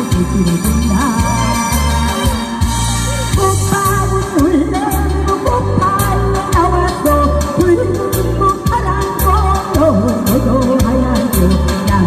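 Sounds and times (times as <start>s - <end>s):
instrumental accompaniment: 0.0s - 12.0s
person singing ballad with vibrato: 0.0s - 12.0s.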